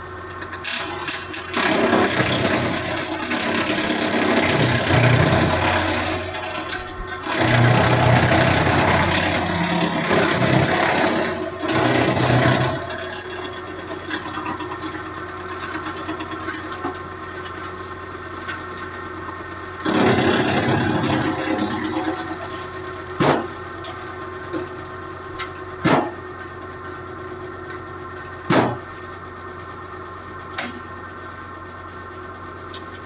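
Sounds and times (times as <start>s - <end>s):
wood chipper engine running: 0.0s - 33.0s
sharp knock: 25.8s - 26.2s, 28.5s - 28.8s.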